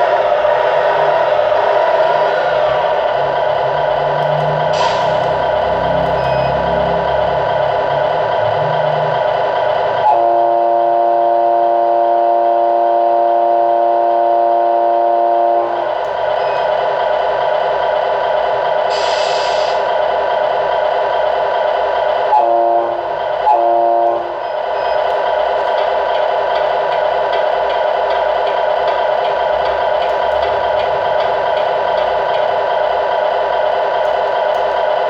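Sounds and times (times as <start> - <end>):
truck engine hum: 0.0 - 10.0, 15.6 - 35.0
air horn blasts: 10.0 - 15.8, 22.3 - 24.5
short air hiss: 18.9 - 19.8.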